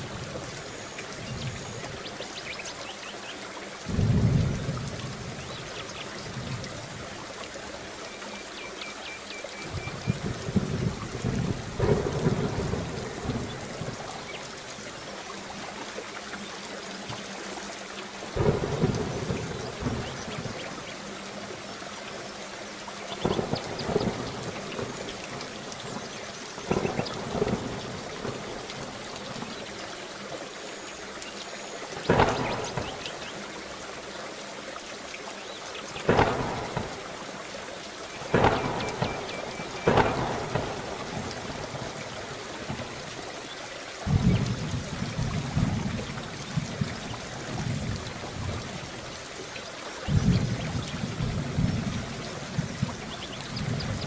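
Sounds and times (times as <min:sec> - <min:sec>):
steady rain: 0:00.0 - 0:54.0
loud thunder claps: 0:09.8 - 0:14.1, 0:18.4 - 0:20.6, 0:23.2 - 0:25.2, 0:26.7 - 0:28.4, 0:32.0 - 0:33.3, 0:36.1 - 0:37.2, 0:38.3 - 0:42.0, 0:44.1 - 0:48.6.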